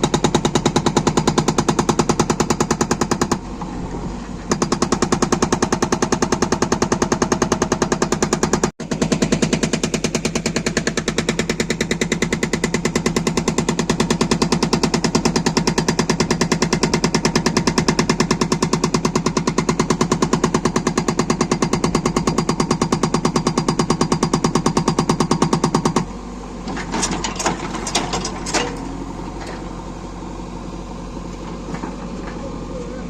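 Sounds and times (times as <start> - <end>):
hydraulic rock breaker hammering stone: 0.0 - 3.4, 4.5 - 28.8
machine engine running: 0.0 - 33.0.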